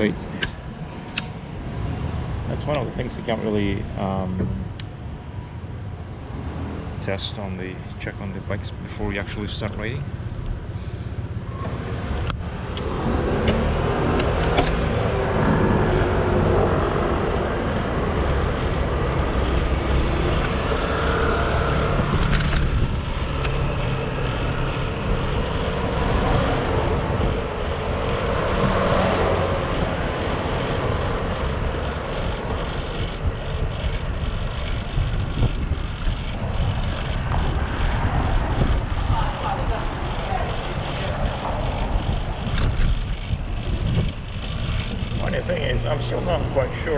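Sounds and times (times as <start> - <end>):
bicycle riding noise: 5.0 - 46.9
bicycle clicks: 9.7 - 11.3, 17.0 - 45.7.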